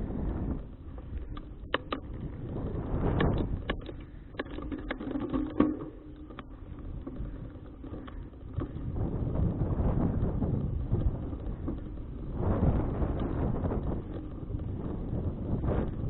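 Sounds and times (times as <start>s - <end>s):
wind buffeting microphone: 0.0s - 16.0s
sharp clicks and knocks: 0.9s - 9.0s.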